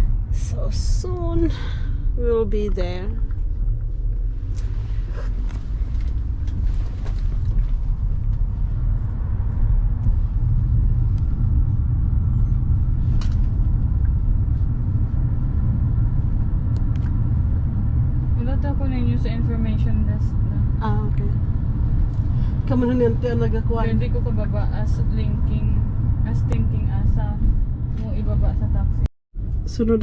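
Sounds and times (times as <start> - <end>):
car road and engine rumble: 0.0 - 30.0.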